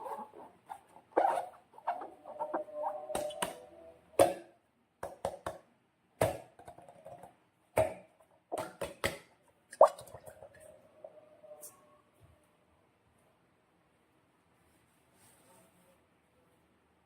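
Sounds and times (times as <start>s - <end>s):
rubbery squeak: 0.0s - 3.7s.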